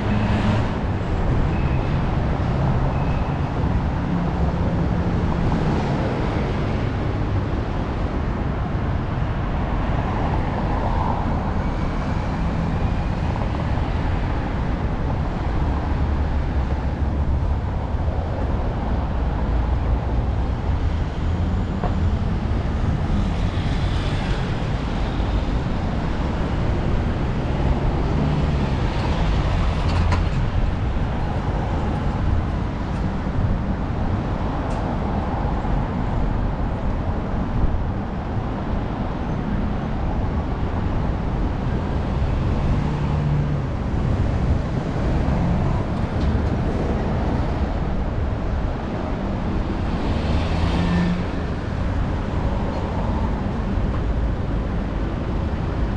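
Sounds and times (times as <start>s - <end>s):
city traffic rumble: 0.0s - 55.9s
passing vehicle engine hum: 41.0s - 55.9s.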